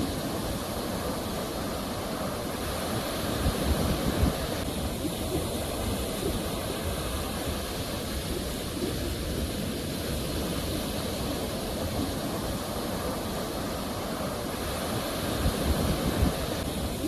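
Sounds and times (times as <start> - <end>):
sea waves washing on shore: 0.0 - 17.0.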